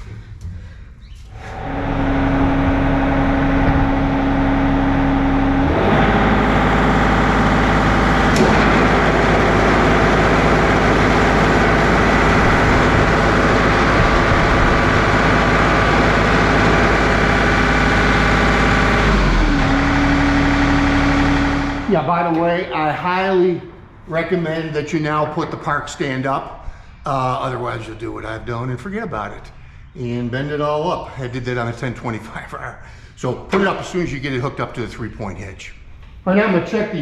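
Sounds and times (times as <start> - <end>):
rototiller running: 1.4 - 22.0
tractor diesel engine running: 1.4 - 22.1.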